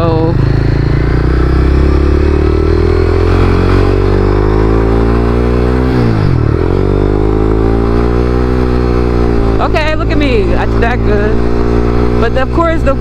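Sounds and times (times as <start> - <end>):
motorcycle engine accelerating: 0.0 - 13.0
rider talking: 9.4 - 11.5, 12.1 - 13.0.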